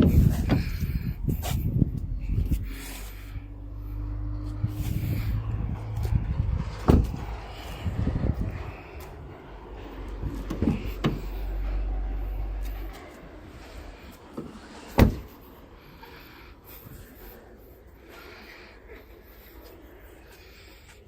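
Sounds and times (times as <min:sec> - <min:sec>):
car door latches clunking: 0:00.0 - 0:00.9, 0:06.8 - 0:07.2, 0:10.2 - 0:11.2, 0:14.4 - 0:15.4
low rumble: 0:00.0 - 0:14.3.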